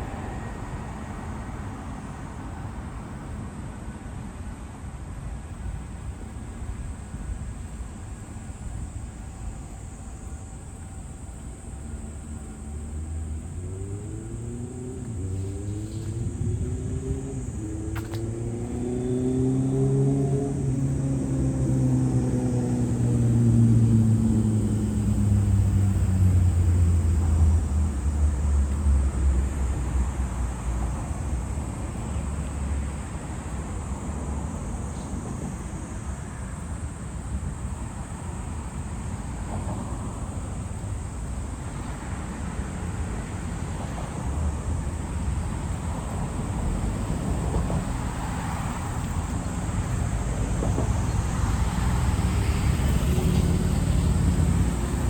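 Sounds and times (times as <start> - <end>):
traffic rumble: 0.0 - 55.0
vehicle passing: 11.8 - 30.9, 42.7 - 55.0.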